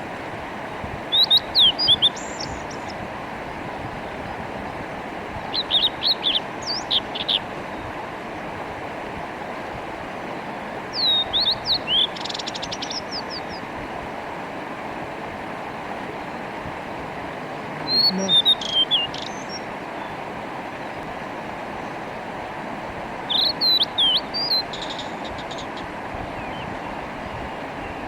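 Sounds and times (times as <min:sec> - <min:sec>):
mountain stream rushing: 0:00.0 - 0:28.0
bird singing high whistles: 0:01.1 - 0:02.7, 0:11.0 - 0:13.6, 0:17.9 - 0:19.6, 0:23.3 - 0:25.7.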